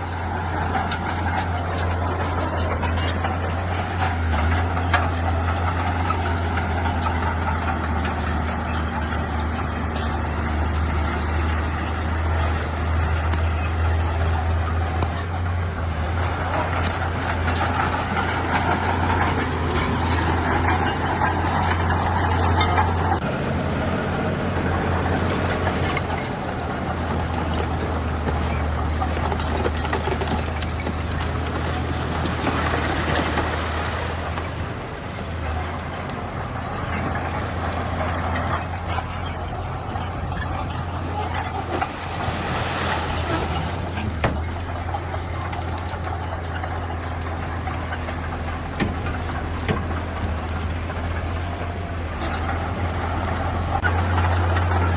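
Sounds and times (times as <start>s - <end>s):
metallic clanks: 0.0s - 23.3s, 23.9s - 54.9s
bulldozer engine running: 0.0s - 54.9s.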